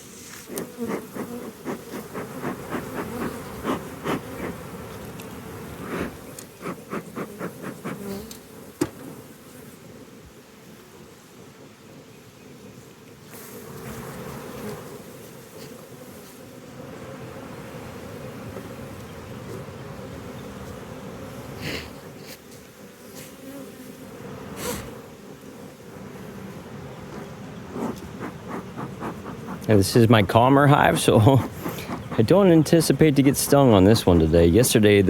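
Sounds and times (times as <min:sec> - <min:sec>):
bees buzzing: 0:00.0 - 0:11.2, 0:13.2 - 0:35.0.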